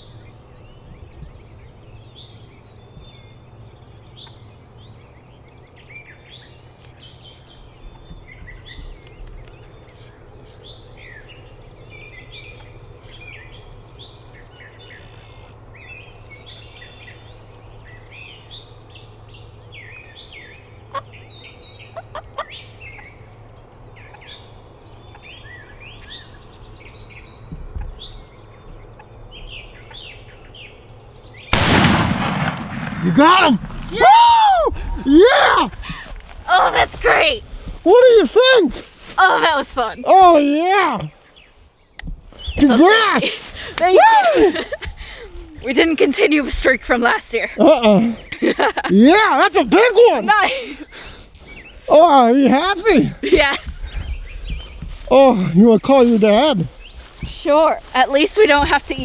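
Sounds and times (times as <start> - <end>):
birds chirping: 0.0 - 59.0
shotgun blast: 31.5 - 34.0.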